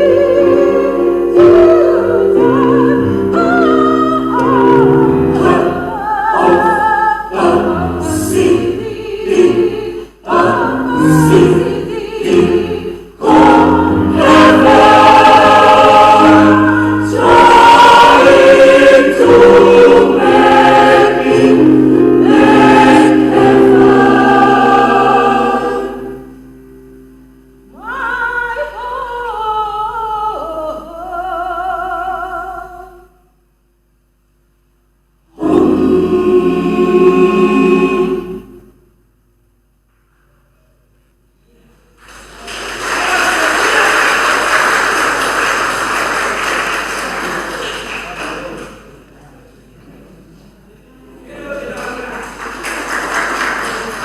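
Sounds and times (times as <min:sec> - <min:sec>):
choir singing in harmony: 0:00.0 - 0:26.6, 0:35.3 - 0:38.8.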